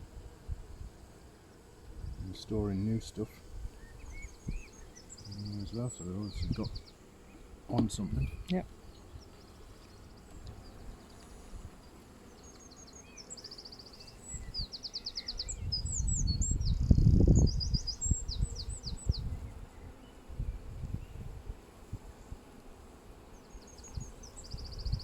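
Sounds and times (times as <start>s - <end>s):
songbird singing trills: 3.8s - 21.2s, 23.3s - 25.0s.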